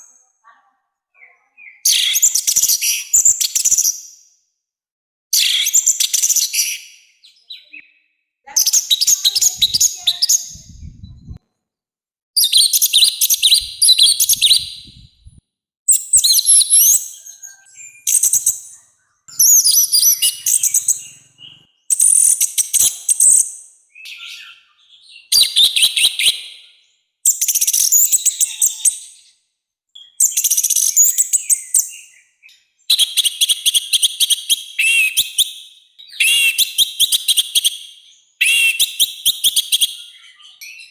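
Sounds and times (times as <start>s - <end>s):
thrush singing warbling phrases: 8.5s - 11.4s.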